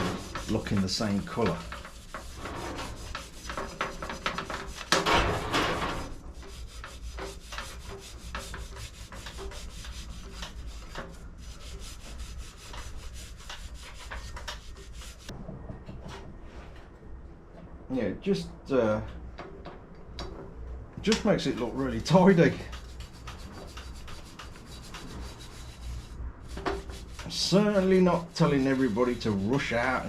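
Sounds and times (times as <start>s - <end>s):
toothbrush scrubbing metal casing: 0.0s - 5.0s, 6.4s - 15.3s, 22.1s - 30.0s.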